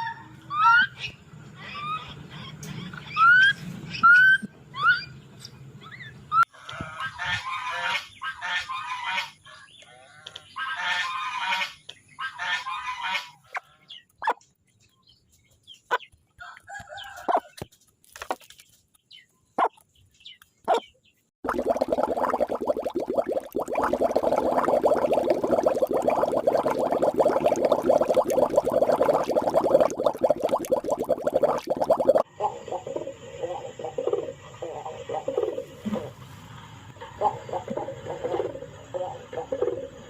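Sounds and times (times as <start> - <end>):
chicken clucks and chirps: 6.6 - 17.8.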